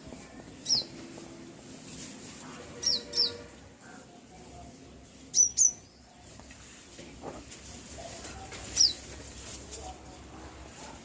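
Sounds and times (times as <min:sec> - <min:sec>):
small bird chirping: 0:00.6 - 0:01.0, 0:02.8 - 0:03.4, 0:05.3 - 0:06.3, 0:08.7 - 0:09.0.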